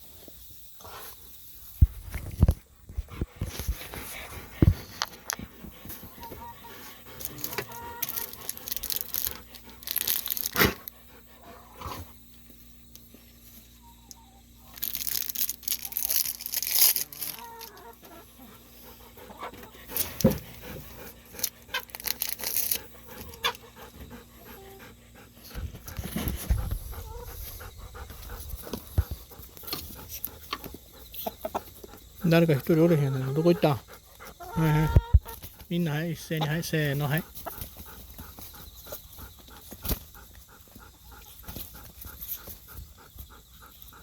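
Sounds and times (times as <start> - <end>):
dog panting: 3.1 - 12.4, 18.1 - 22.0, 22.6 - 34.8, 35.5 - 44.0
rustles and clicks: 14.7 - 17.8.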